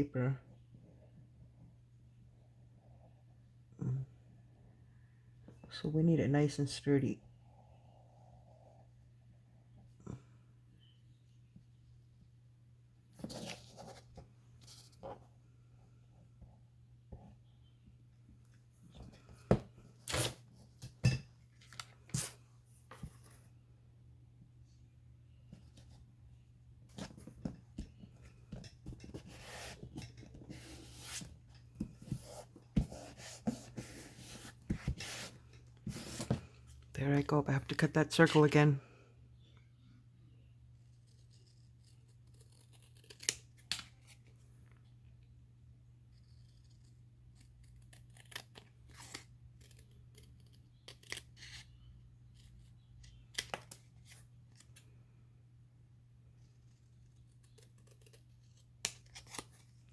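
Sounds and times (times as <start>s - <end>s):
low electrical hum: 0.0s - 59.9s
scissors snipping paper: 41.5s - 43.9s.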